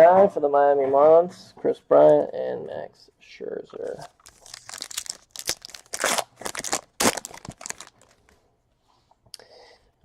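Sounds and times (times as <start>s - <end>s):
card wrappers crinkling and tearing: 4.0s - 8.3s.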